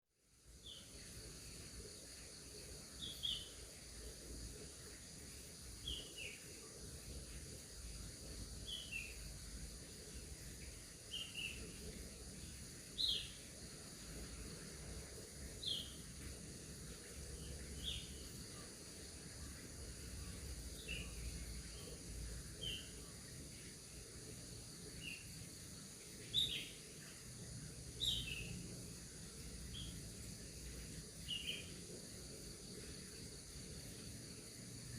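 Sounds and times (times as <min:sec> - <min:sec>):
bird chirping: 0:00.6 - 0:04.0, 0:05.5 - 0:06.7, 0:07.3 - 0:14.6, 0:15.6 - 0:34.1.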